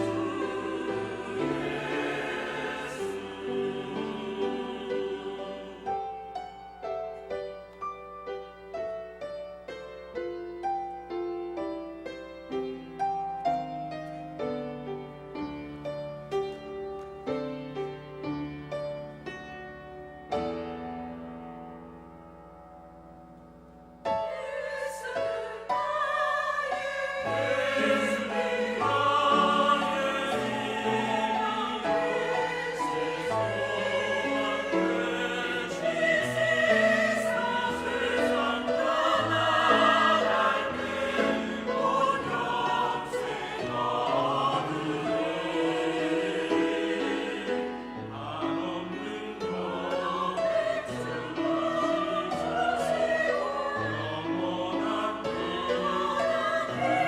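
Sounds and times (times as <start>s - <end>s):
choir singing a hymn: 0.0s - 21.7s, 24.0s - 57.0s
quiet piano: 0.0s - 57.0s.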